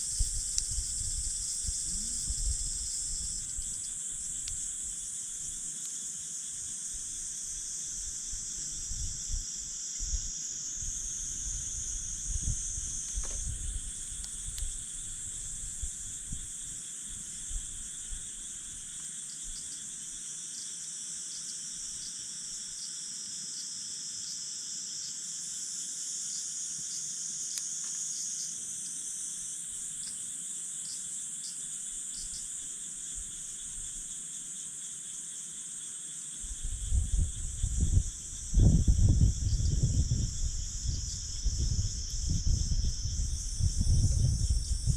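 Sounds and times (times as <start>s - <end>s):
night insects chirping: 0.0s - 44.9s
campfire pops: 13.0s - 13.6s.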